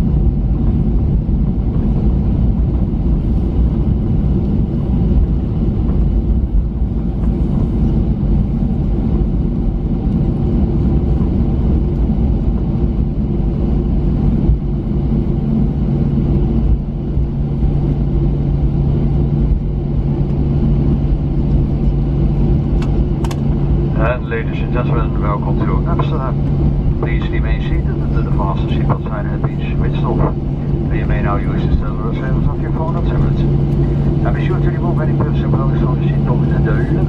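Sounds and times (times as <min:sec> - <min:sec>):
aircraft cabin engine rumble: 0:00.0 - 0:37.0
steady hum: 0:00.0 - 0:37.0.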